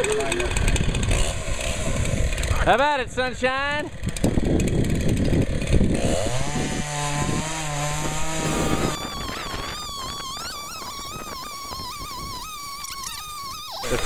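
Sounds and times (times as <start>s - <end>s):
chainsaw cutting wood: 0.0s - 2.7s, 3.9s - 14.0s
wavering high tone: 8.4s - 14.0s.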